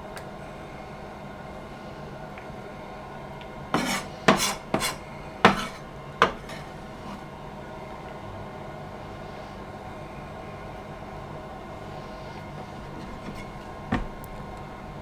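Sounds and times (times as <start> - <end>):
kitchen utensils clattering: 3.8 - 7.3, 12.6 - 14.3.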